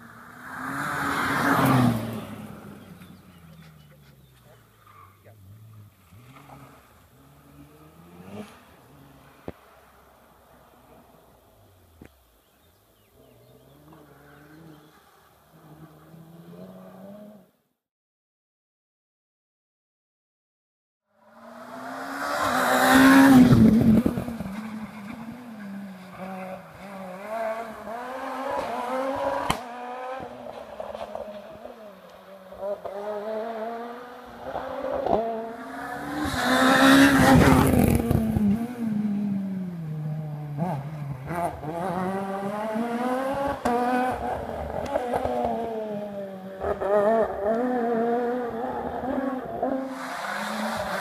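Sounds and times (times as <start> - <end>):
rally car engine revving: 0.2 - 9.5, 21.2 - 51.0.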